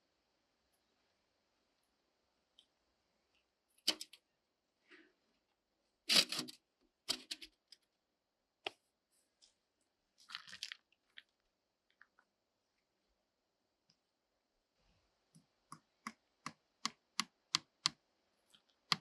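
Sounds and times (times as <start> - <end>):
crackling and tearing noises: 10.2 - 11.3.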